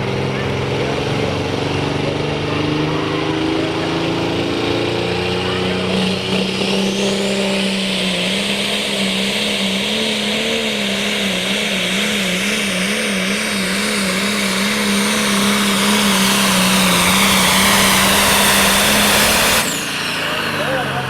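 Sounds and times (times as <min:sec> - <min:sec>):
diesel engine at full throttle: 0:00.0 - 0:21.0
loud turbo hiss: 0:13.5 - 0:21.0.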